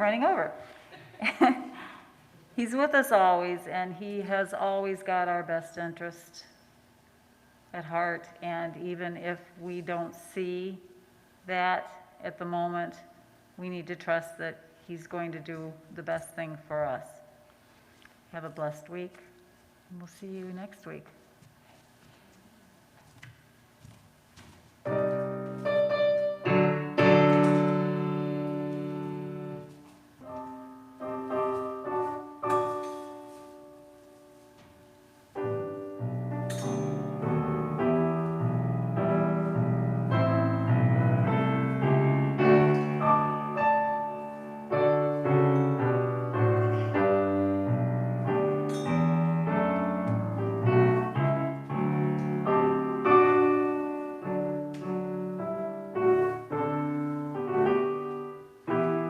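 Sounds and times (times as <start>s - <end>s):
piano music: 0.0s - 0.6s, 24.8s - 59.0s.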